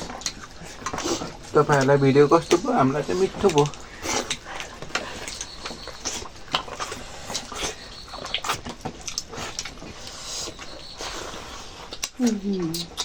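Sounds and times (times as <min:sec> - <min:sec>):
wet chewing and lip-smacking: 0:00.0 - 0:13.0.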